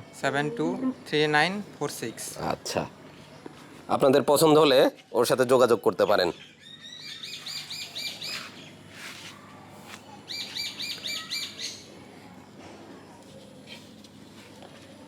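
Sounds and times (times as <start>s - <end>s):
bird singing high chirps: 5.9s - 8.8s, 10.2s - 11.9s.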